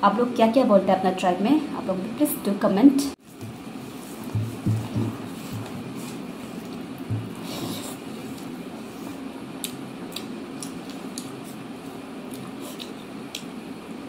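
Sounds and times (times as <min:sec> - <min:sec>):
steady low hum: 0:00.0 - 0:14.0
mouthful thump: 0:04.3 - 0:05.3, 0:07.1 - 0:07.5
chewing with mouth clicks: 0:09.6 - 0:11.6, 0:12.2 - 0:13.6.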